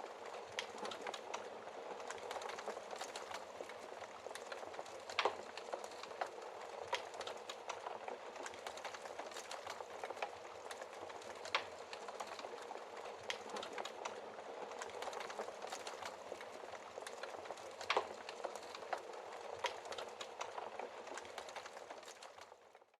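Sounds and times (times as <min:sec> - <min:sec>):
wood fire crackling and popping: 0:00.0 - 0:22.8.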